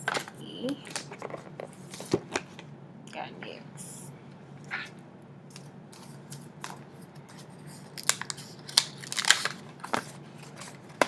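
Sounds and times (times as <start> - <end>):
paper crinkles: 6.0 - 11.0
envelope being torn open: 7.8 - 11.0.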